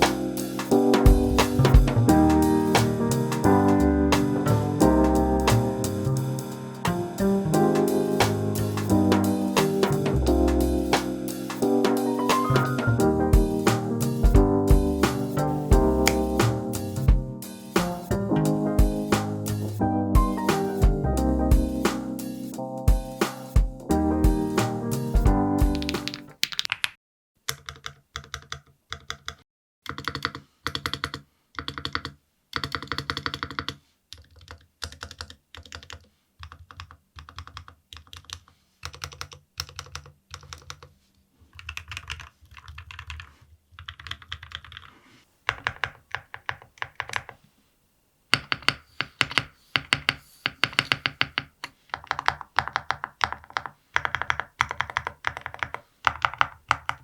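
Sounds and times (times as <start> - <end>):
keyboard keys clacking: 0.0 - 26.8, 48.4 - 57.0.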